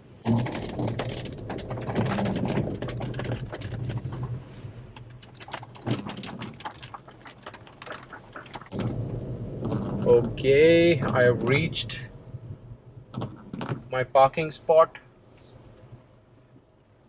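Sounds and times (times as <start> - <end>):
car hum: 0.0 - 17.0
clicks and taps in car cabin: 13.1 - 13.9.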